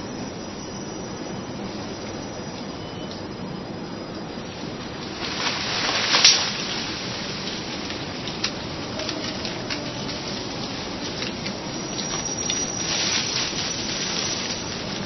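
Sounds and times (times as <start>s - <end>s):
steady rain hiss: 0.0s - 15.0s
raindrops striking close by: 4.2s - 15.0s.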